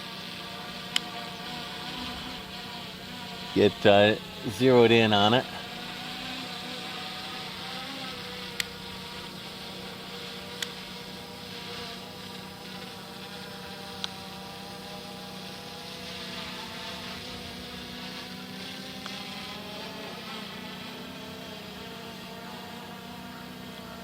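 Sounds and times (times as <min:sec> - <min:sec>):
drone propellers whining: 0:00.0 - 0:24.0
small sharp clicks: 0:00.9 - 0:01.1, 0:08.4 - 0:08.8, 0:10.6 - 0:10.9, 0:14.0 - 0:14.2.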